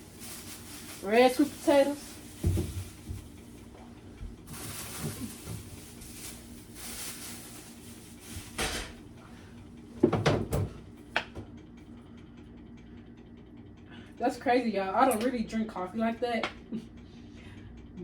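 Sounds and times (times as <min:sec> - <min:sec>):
packaging rustling: 0:00.0 - 0:03.6, 0:04.4 - 0:08.6
items knocking and clattering: 0:02.2 - 0:03.4, 0:04.2 - 0:06.3, 0:08.3 - 0:09.0, 0:10.0 - 0:11.4.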